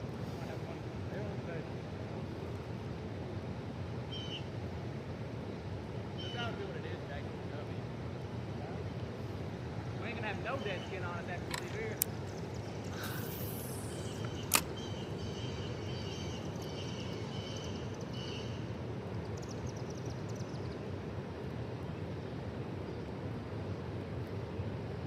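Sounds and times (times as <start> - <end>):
sharp click: 11.5 - 12.2, 13.0 - 14.8
faint high chirps: 12.5 - 18.5.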